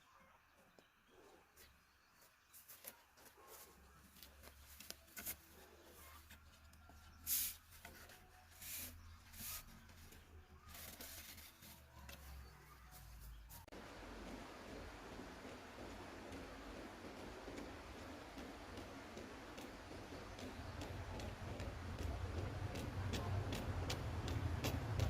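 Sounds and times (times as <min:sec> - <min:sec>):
low steady hum: 0:11.9 - 0:25.0.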